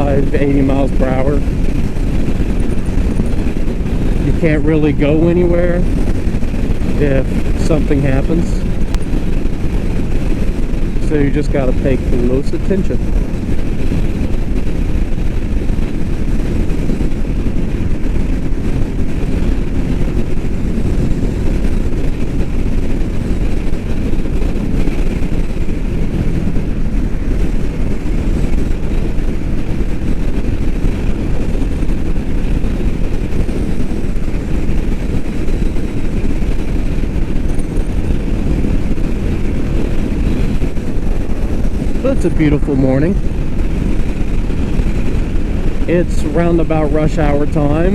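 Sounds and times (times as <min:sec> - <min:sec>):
motorcycle engine cruising: 0:00.0 - 0:47.9
wind noise rushing: 0:00.0 - 0:47.9.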